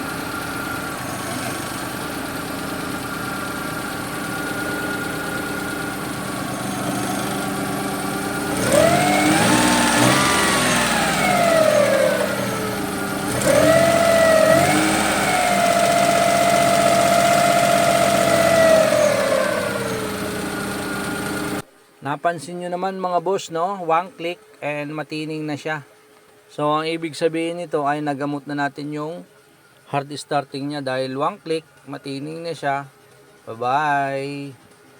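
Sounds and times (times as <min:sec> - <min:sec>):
car engine revving and idling: 0:00.0 - 0:21.7.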